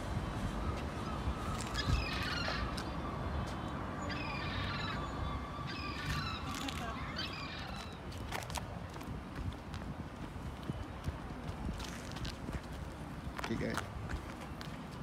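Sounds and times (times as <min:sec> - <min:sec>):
bird calls: 0:01.0 - 0:03.0, 0:04.0 - 0:08.0.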